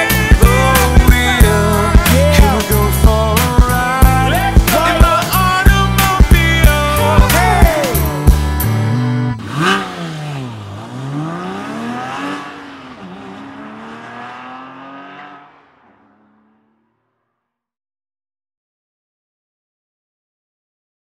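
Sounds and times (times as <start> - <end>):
song beat: 0.0 - 9.7
car engine revving: 6.8 - 17.1.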